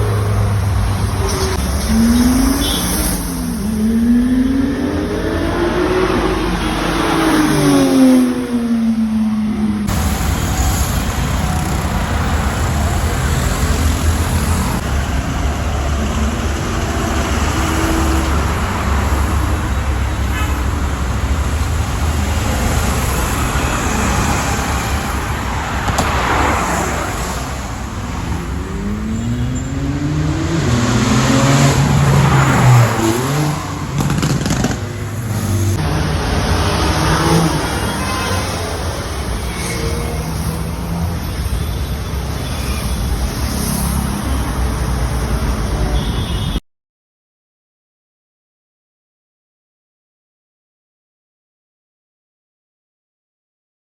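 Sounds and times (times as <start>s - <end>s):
traffic engine and tyre rumble: 0.0s - 46.6s
engine revving up: 27.9s - 37.9s.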